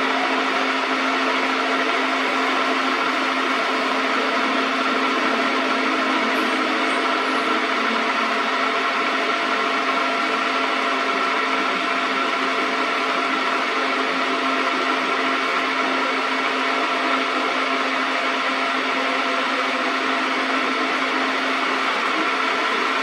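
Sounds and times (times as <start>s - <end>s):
metal lathe humming: 0.0s - 16.9s.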